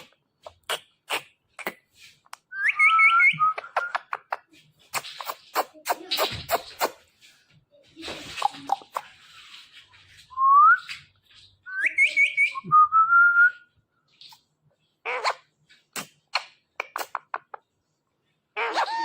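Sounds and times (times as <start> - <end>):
parrot chirps and calls: 0.4 - 7.1, 10.8 - 12.7, 14.2 - 17.6, 18.6 - 19.0
parrot whistling: 2.5 - 4.0.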